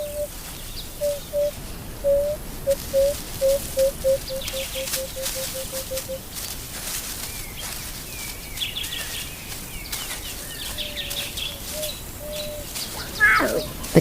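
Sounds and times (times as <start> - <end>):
bird chirps and gliding whistles: 0.0 - 6.3, 7.2 - 14.0
low piping bird note: 0.0 - 6.3, 9.9 - 14.0.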